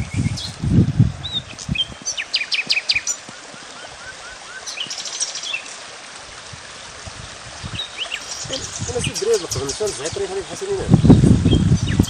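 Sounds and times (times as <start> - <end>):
songbirds chirping: 0.0 - 12.0
steady outdoor hiss: 0.0 - 12.0.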